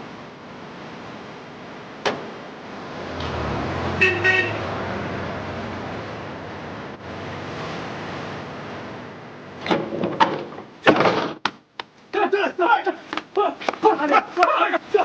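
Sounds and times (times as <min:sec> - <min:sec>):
moving car engine: 0:02.2 - 0:09.3
car horn honking: 0:03.9 - 0:04.8.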